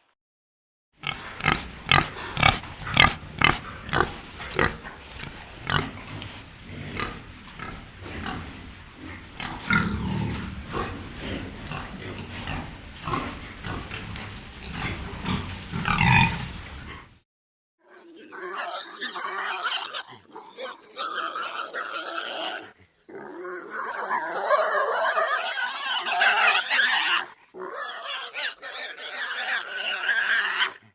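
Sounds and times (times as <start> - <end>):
pigs grunting: 1.0 - 17.2, 17.8 - 30.9
pigs squealing: 9.4 - 17.1, 17.8 - 30.9.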